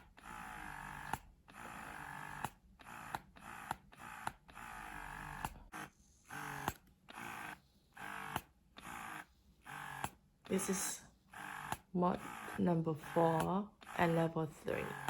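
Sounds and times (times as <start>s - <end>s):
sharp pump clicks: 0.0s - 5.6s, 6.4s - 10.6s, 11.3s - 12.6s
breast pump motor humming: 0.0s - 15.0s.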